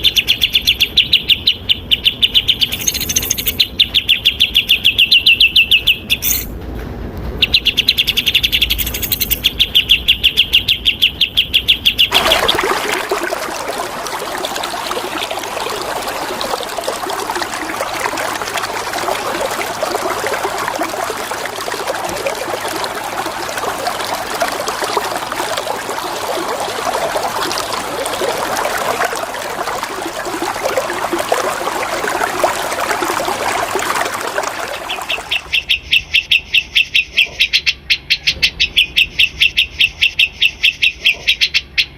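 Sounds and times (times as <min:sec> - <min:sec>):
songbird chirping: 0:00.0 - 0:06.5, 0:07.3 - 0:30.8, 0:31.4 - 0:41.9
water rushing: 0:12.1 - 0:35.6.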